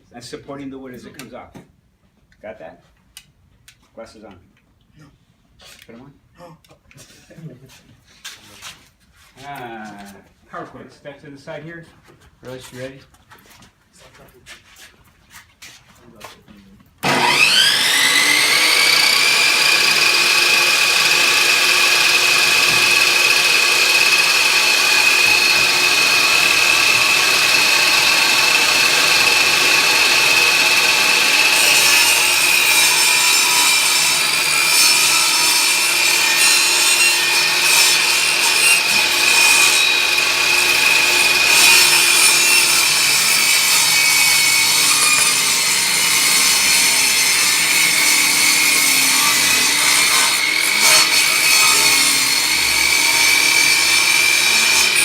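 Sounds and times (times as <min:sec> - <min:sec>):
saw ripping a board: 0:17.0 - 0:55.0
table saw blade whining: 0:17.0 - 0:55.0.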